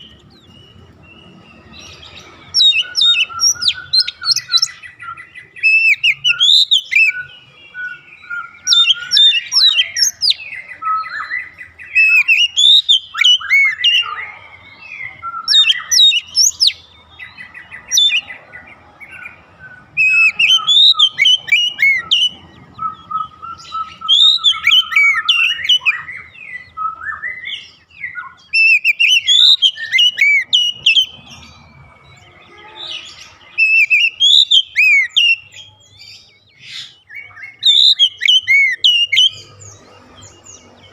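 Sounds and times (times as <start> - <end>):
rapid repeated bird notes: 0.0 - 40.9
bird whistled phrases: 2.5 - 16.8, 20.0 - 31.2, 32.6 - 35.8, 36.6 - 39.4.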